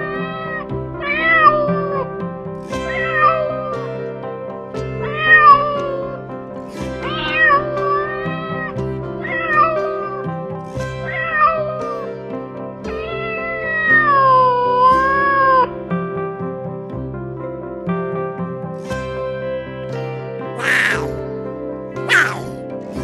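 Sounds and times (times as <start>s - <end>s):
background music with sustained chords: 0.0s - 23.0s
cat meowing: 20.6s - 21.2s, 22.0s - 22.6s.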